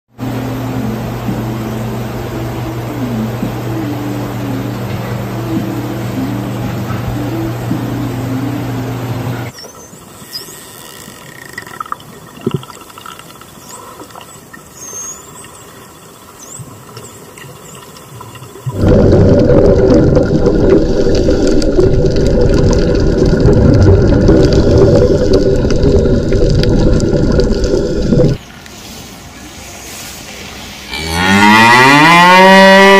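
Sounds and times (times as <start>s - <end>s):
low steady hum: 0.1s - 9.9s, 11.5s - 32.9s
underwater rush of bubbles: 18.5s - 28.4s.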